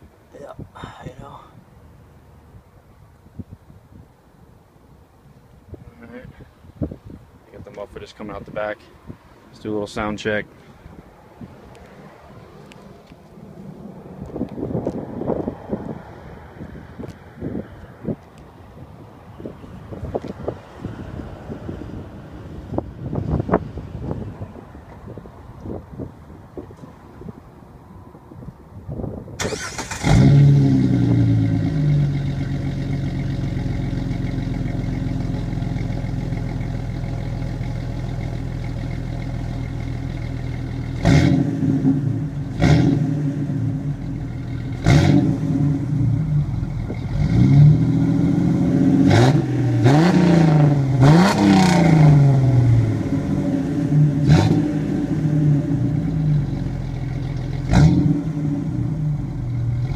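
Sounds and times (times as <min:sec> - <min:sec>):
engine revs: 0:29.4 - 0:34.5, 0:40.8 - 0:56.7, 0:57.5 - 0:59.9
car engine starting and idling: 0:29.4 - 0:59.9.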